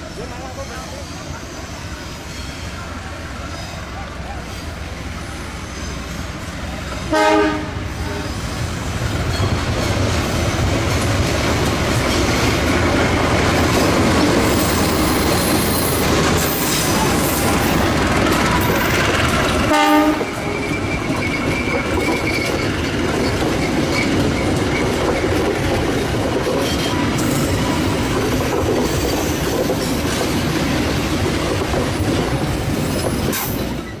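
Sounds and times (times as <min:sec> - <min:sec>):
train wheels rumbling on rails: 0:00.0 - 0:34.0
high wheel squeal: 0:00.1 - 0:06.3, 0:20.2 - 0:25.4
train horn: 0:07.0 - 0:08.5, 0:19.6 - 0:20.6.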